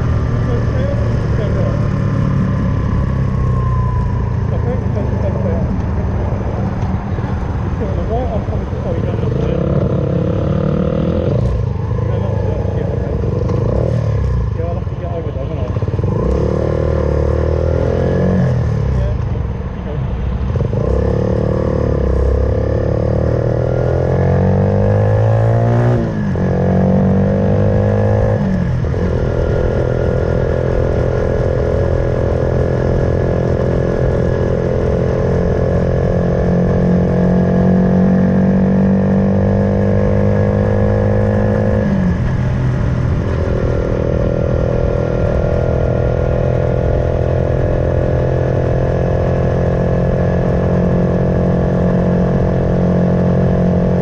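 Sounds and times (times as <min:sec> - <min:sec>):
motorcycle engine revving through gears: 0:00.0 - 0:19.3, 0:20.4 - 0:54.0.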